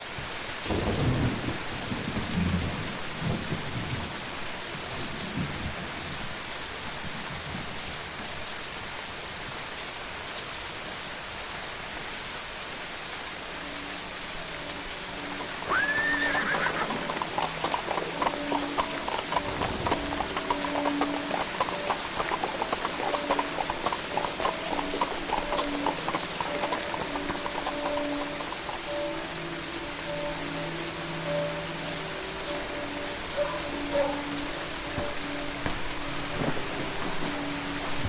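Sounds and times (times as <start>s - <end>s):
steady rain: 0.0s - 38.0s
rumbling thunder: 0.7s - 4.2s
hoof clops: 15.3s - 29.2s, 33.4s - 38.0s
horse whinnying: 15.6s - 24.4s.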